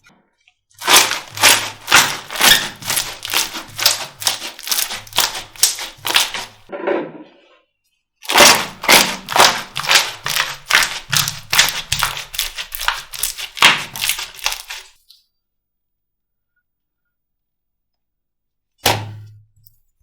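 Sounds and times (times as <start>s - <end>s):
slime squished by hand: 0.8s - 6.7s, 8.2s - 15.0s.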